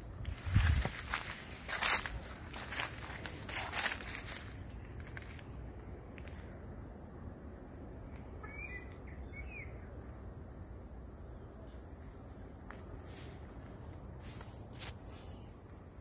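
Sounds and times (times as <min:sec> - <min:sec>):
bird chirps: 0:08.4 - 0:10.0.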